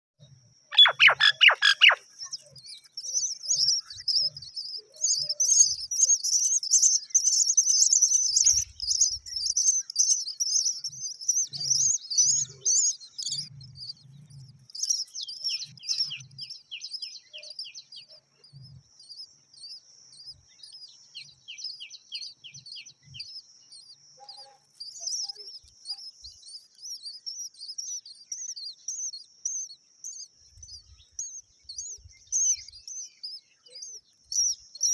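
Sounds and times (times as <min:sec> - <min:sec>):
myna birds chirping: 0:00.2 - 0:34.9
rapid evenly spaced bird notes: 0:00.7 - 0:14.0.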